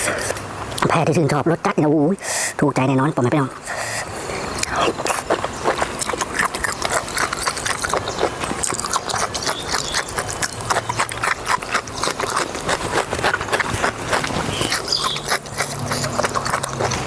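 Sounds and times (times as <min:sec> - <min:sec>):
wet smacking and crunching chewing: 0:04.4 - 0:17.0.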